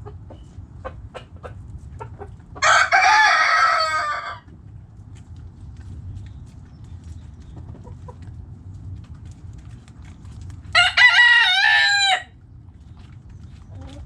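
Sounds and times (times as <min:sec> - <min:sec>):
low background rumble: 0:00.0 - 0:14.0
rooster crowing: 0:02.6 - 0:04.5, 0:10.7 - 0:12.4.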